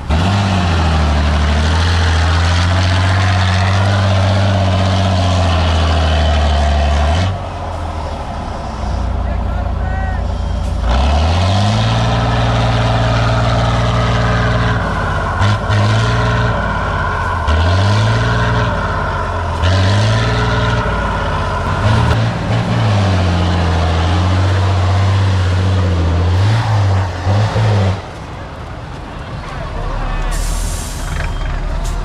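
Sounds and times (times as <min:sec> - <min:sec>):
diesel truck engine revving: 0:00.0 - 0:32.0.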